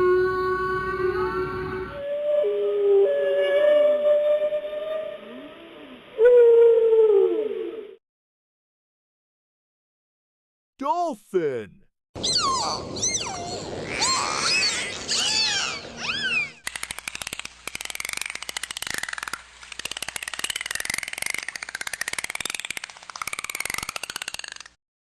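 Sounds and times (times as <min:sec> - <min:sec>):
dolphin whistles: 0:12.2 - 0:16.6
dolphin clicks and pulsed call: 0:14.5 - 0:24.8.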